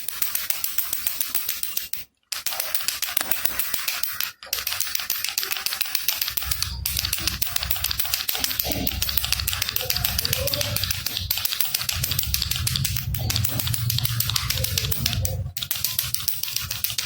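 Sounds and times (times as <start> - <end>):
baby rattle shaken: 0.0 - 17.0
low rumble: 6.4 - 15.6.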